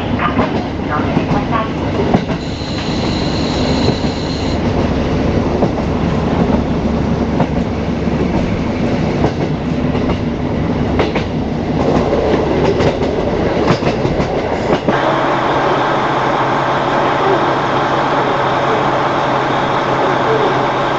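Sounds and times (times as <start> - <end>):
train engine drone: 0.0 - 20.9
wheels clacking over rail joints: 0.2 - 15.0.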